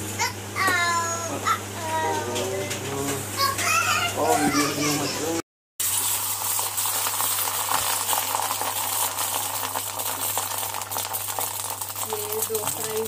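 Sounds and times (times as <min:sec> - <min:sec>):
omelette sizzling on griddle: 0:05.8 - 0:13.0.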